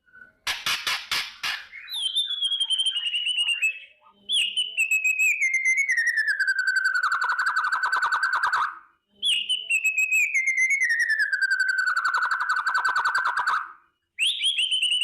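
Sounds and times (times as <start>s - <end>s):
bird harsh rattling call: 0.4s - 3.3s
bird whistled trills: 1.5s - 15.0s.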